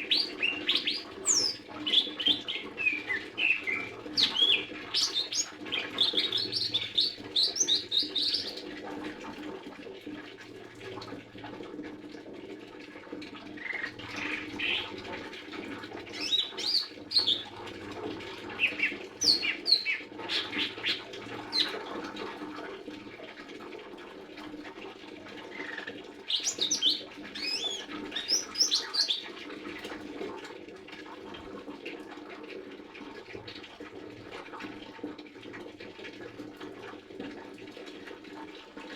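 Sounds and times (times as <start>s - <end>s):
bird singing high chirps: 0.0s - 8.6s, 16.2s - 17.5s, 18.6s - 21.7s, 26.3s - 29.3s.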